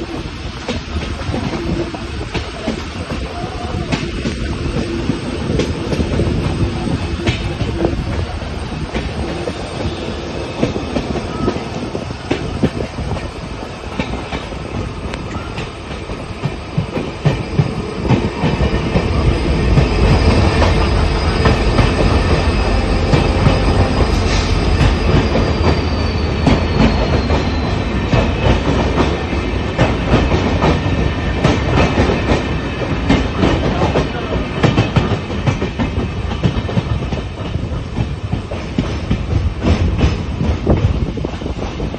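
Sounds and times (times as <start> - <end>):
train rumble: 0.0 - 41.9
train wheels clattering on rails: 0.0 - 41.9
faint high squeal: 19.0 - 28.0.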